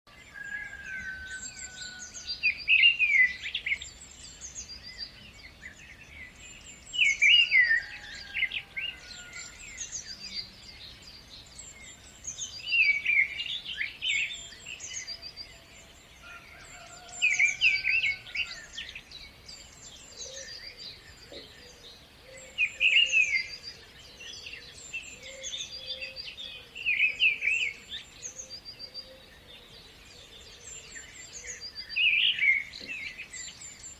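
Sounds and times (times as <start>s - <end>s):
bird song phrase: 0.1s - 33.9s
birds chirping: 0.1s - 33.9s.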